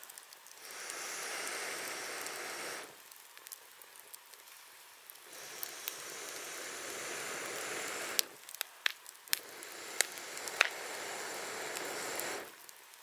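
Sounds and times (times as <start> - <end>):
campfire crackling and popping: 0.0 - 13.0
air whooshing through flames: 0.5 - 3.1, 5.1 - 12.6.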